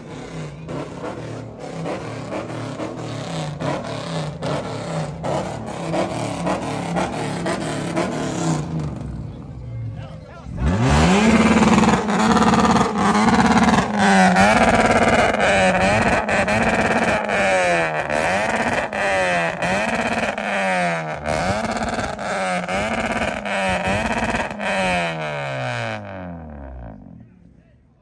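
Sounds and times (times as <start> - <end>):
car engine on rev limiter: 10.5 - 27.3.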